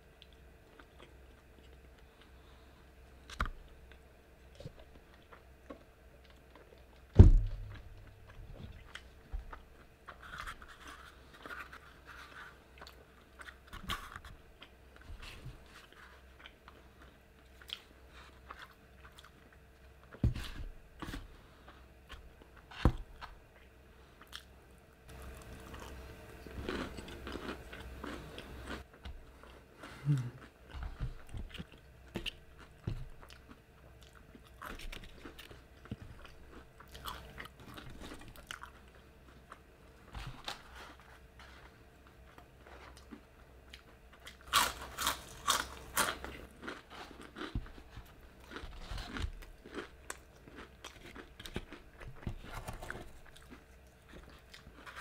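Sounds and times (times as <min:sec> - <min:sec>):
faint steady hum: 0:00.0 - 0:55.0
loud thump: 0:07.2 - 0:07.7
person crunching fried food: 0:24.2 - 0:28.9, 0:31.5 - 0:39.6, 0:42.8 - 0:55.0.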